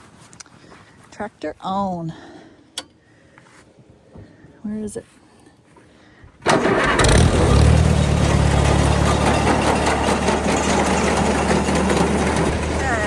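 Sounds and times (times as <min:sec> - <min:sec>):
tractor engine starting and running: 0:06.4 - 0:13.0.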